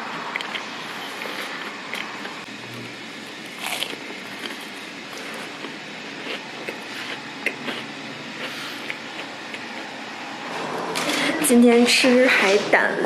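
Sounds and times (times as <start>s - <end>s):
crunching of crisp pastry: 3.3s - 9.9s.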